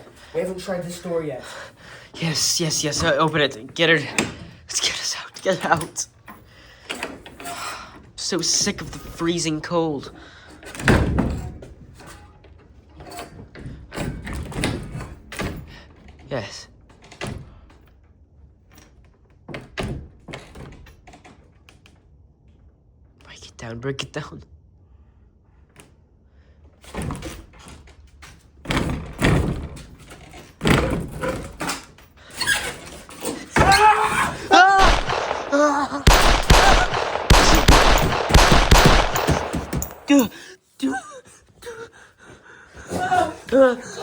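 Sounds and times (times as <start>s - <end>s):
door handle and latch rattling: 34.8s - 40.3s.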